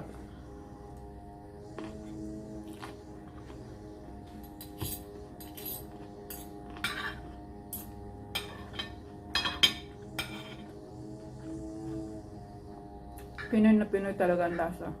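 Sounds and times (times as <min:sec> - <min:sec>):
soft background music: 0:00.0 - 0:15.0
cutlery clinking on a plate: 0:04.6 - 0:10.7.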